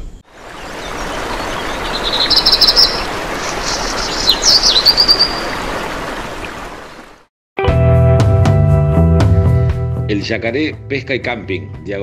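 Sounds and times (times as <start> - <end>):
birds chirping and trilling: 0.0 - 7.0.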